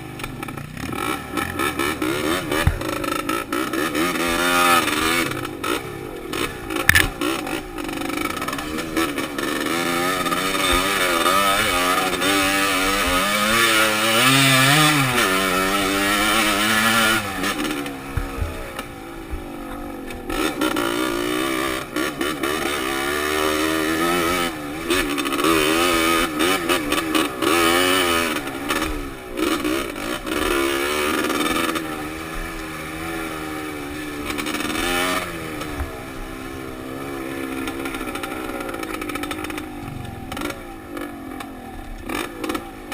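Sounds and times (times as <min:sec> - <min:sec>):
dirt bike engine revving: 0:00.0 - 0:42.9
wind on microphone: 0:39.8 - 0:40.7.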